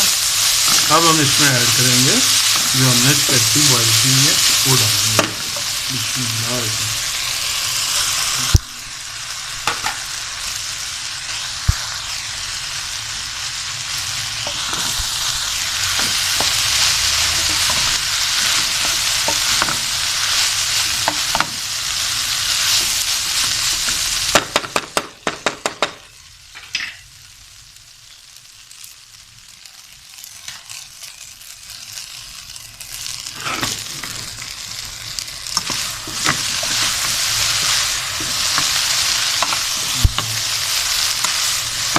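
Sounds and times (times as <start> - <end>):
food sizzling in hot oil: 0.0 - 41.9
spatula scraping pan: 14.4 - 19.9, 33.2 - 34.5, 35.4 - 41.9.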